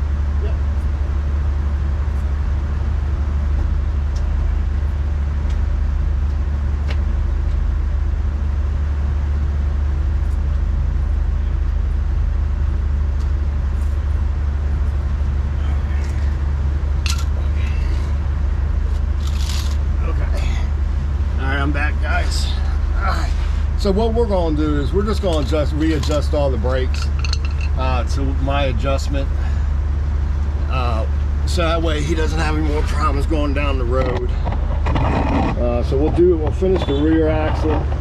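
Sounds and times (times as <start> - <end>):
truck engine idling: 0.0 - 38.0
tools clicking on brake hardware: 26.9 - 27.8.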